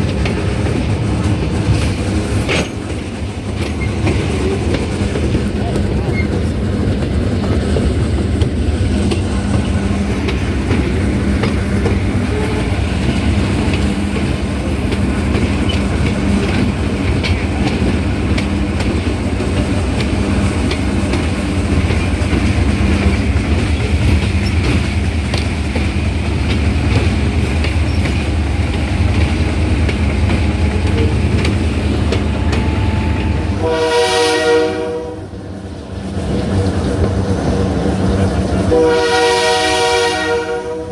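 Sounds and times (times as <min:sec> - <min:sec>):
wheels clacking over rail joints: 0:00.0 - 0:34.0
train rumbling: 0:00.0 - 0:40.9
locomotive horn: 0:32.0 - 0:35.4, 0:38.6 - 0:40.9.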